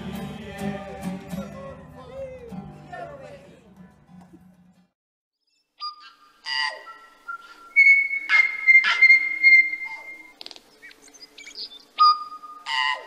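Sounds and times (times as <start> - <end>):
bird whistling notes: 5.8 - 13.0
harsh bird calls: 5.8 - 13.0.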